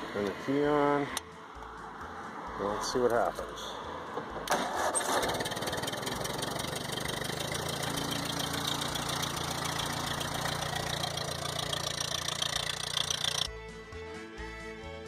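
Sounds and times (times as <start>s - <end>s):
tractor engine idling: 4.5s - 13.5s.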